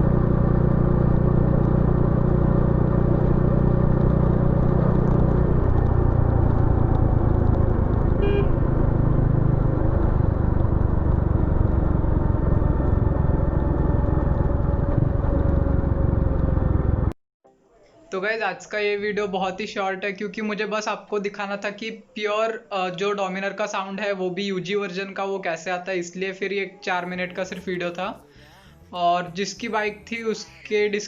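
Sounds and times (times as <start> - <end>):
motorcycle engine running: 0.0 - 17.2.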